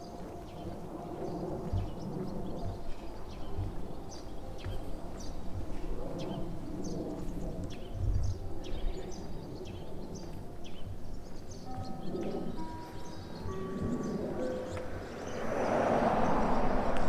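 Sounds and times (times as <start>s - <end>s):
small birds chirping: 0.0s - 15.8s.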